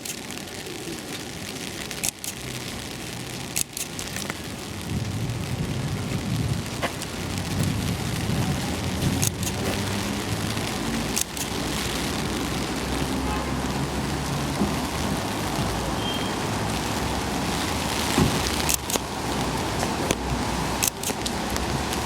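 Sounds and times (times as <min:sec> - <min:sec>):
heavy rain splashing on street: 0:00.0 - 0:22.0
sharp clicks: 0:01.9 - 0:02.6, 0:03.3 - 0:04.4, 0:09.0 - 0:09.8, 0:11.0 - 0:11.6, 0:18.6 - 0:19.1, 0:20.8 - 0:22.0
low rumble: 0:04.7 - 0:11.1.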